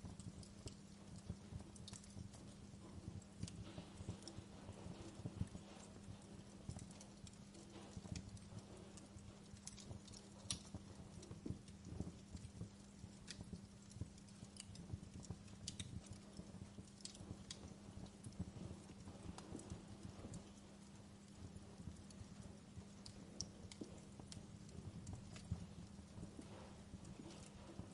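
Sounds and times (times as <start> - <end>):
campfire crackling and popping: 0.0 - 27.9
low rumble of flames: 0.0 - 27.9.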